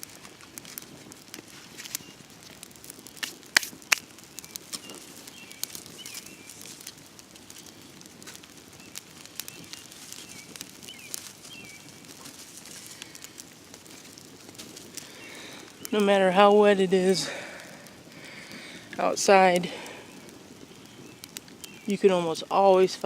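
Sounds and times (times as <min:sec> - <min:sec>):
steady hiss: 0:00.0 - 0:23.0
bird chirps: 0:08.8 - 0:12.1, 0:20.0 - 0:22.1.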